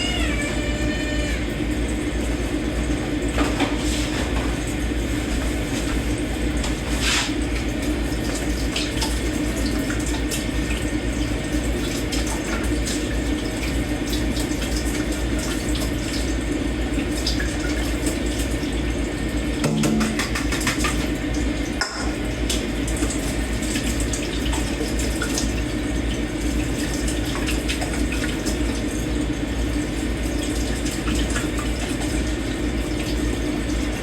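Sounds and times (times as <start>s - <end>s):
tap running into sink: 19.5s - 23.2s
dishes clinking: 21.8s - 22.2s.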